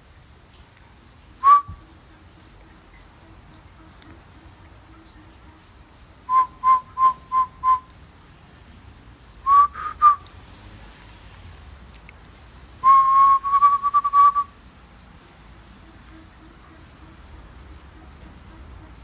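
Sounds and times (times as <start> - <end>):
person whistling short notes: 1.4 - 1.8, 6.3 - 7.9, 9.5 - 10.3, 12.8 - 14.5.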